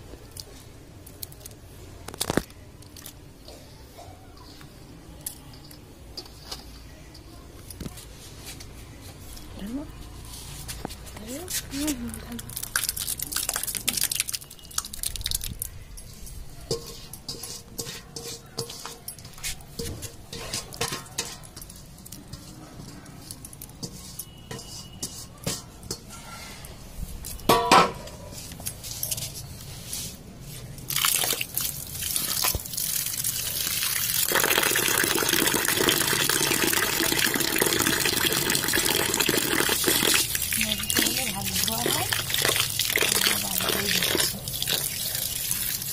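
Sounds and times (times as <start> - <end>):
wet batter dripping through cloth: 11.2 - 15.8, 30.8 - 45.9
water pouring: 12.4 - 15.7, 30.9 - 45.9.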